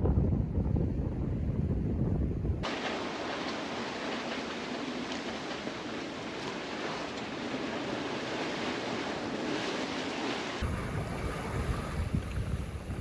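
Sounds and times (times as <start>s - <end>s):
low wind rumble: 0.0s - 2.7s, 5.6s - 13.0s
water rushing past boat: 2.6s - 13.0s.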